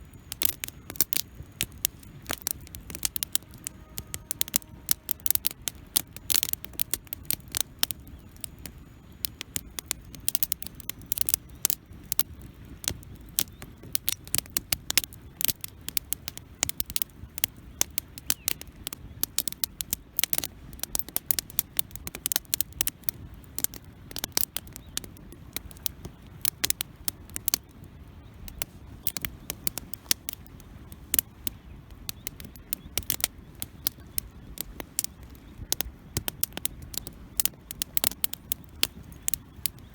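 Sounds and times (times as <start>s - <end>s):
campfire crackling: 0.0s - 39.9s
low fire rumble: 0.0s - 39.9s.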